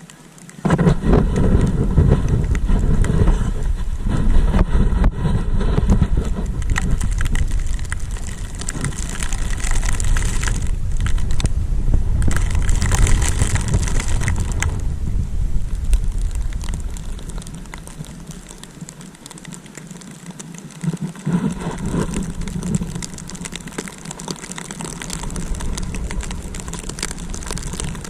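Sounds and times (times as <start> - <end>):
snowboard sliding over snow: 0.0 - 28.0
wind buffeting microphone: 0.6 - 19.0, 21.2 - 28.0.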